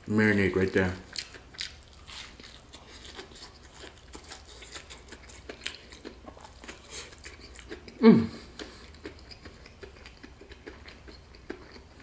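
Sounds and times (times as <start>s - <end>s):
crunching fried chicken: 0.4s - 8.0s.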